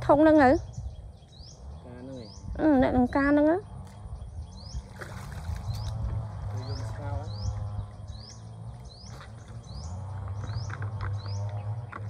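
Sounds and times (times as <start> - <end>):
low steady rumble: 0.0 - 12.0
bird high rising chirp: 0.1 - 11.8.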